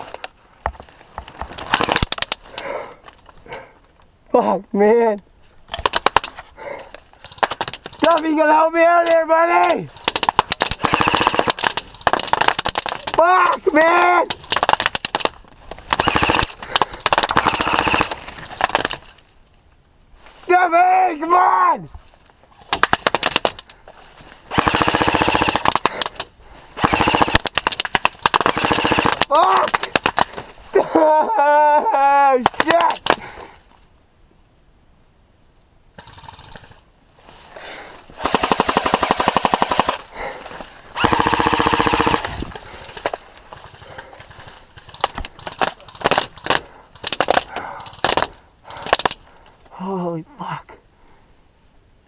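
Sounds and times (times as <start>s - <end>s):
sharp single cracks: 1.5s - 2.7s, 5.7s - 6.4s, 7.2s - 8.4s, 9.0s - 19.2s, 22.6s - 23.8s, 24.5s - 30.5s, 32.4s - 33.4s, 38.2s - 49.4s
airsoft guns firing full-auto bursts: 10.0s - 13.0s, 15.9s - 18.9s, 22.8s - 23.6s, 24.5s - 26.2s, 26.8s - 30.4s, 38.2s - 40.3s, 40.9s - 43.0s.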